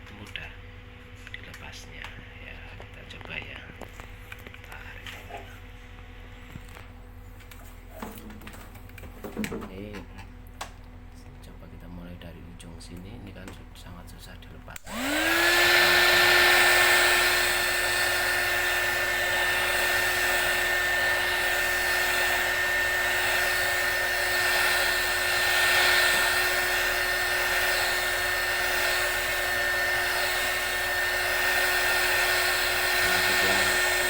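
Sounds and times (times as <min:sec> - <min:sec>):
hot air gun fan whine: 0:14.7 - 0:34.0.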